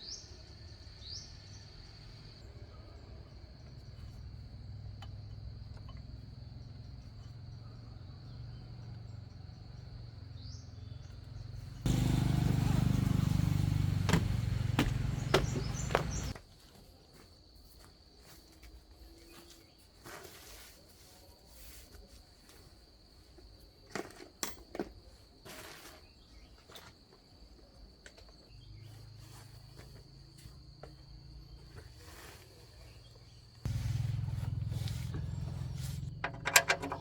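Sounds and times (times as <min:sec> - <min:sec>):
low motor hum: 0:11.8 - 0:16.4, 0:33.7 - 0:37.0
sharp clicks and knocks: 0:36.1 - 0:37.0.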